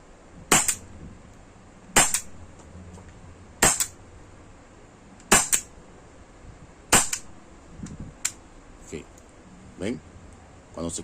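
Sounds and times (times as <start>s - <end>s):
air pistol shots cracking: 0.5s - 0.9s, 2.0s - 2.4s, 3.6s - 4.0s, 5.3s - 5.7s, 6.9s - 7.3s.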